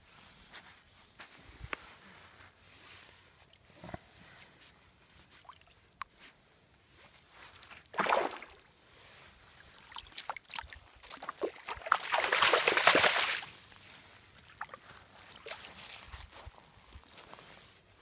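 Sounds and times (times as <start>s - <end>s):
water splashing and sloshing: 7.8s - 8.6s, 9.6s - 15.9s.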